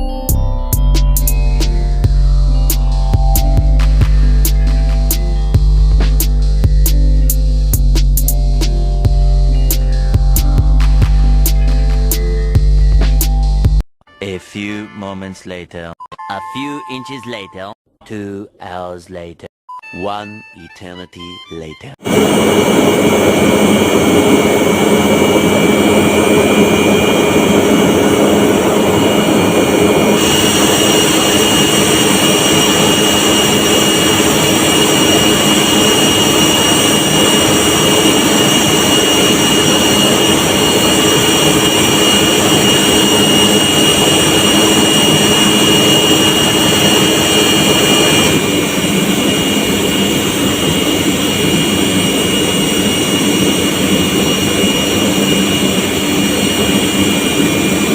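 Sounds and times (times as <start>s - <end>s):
air compressors droning and whining: 22.0s - 57.9s.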